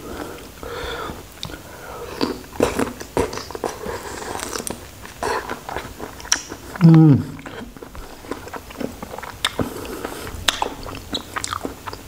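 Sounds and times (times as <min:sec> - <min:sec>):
biting and chewing: 0:02.2 - 0:12.0
wet mouth clicks: 0:04.4 - 0:07.8, 0:08.4 - 0:12.0.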